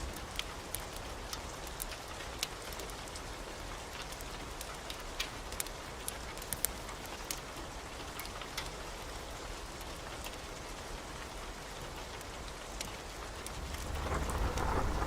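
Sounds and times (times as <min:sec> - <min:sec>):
pouring rain: 0:00.0 - 0:15.0.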